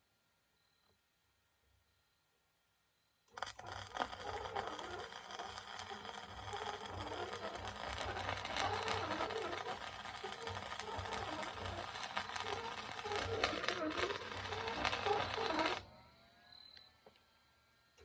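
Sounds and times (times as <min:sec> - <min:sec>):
welding arc crackling: 0:03.3 - 0:15.8.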